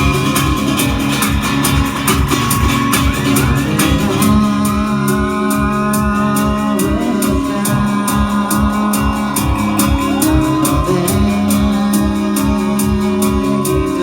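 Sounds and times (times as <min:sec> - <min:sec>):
electric guitar bending notes: 0:00.0 - 0:14.0
steady drum beat: 0:00.0 - 0:14.0.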